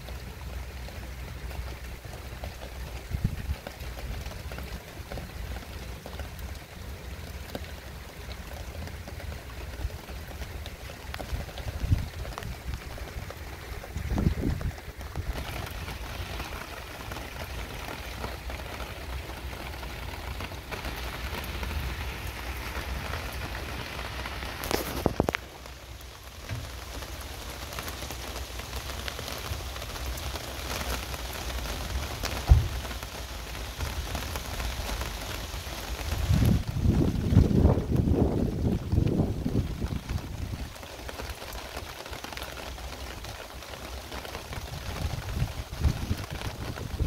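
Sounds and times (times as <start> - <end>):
heavy rain: 0.0 - 47.0
sharp low thump: 32.4 - 32.9.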